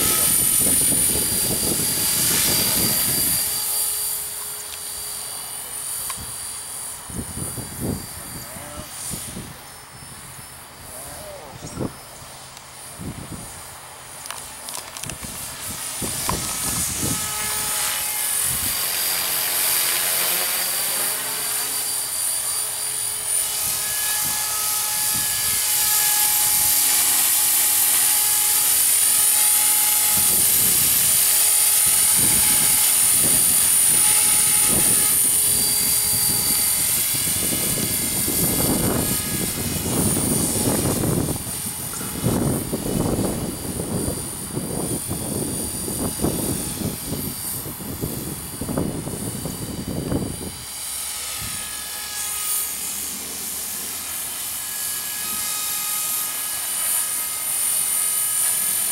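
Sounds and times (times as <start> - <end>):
wind rumble on microphone: 0.0 - 3.8, 7.0 - 12.0, 12.8 - 19.0, 23.5 - 27.8, 29.0 - 51.8
model helicopter rotor whine: 0.0 - 58.9.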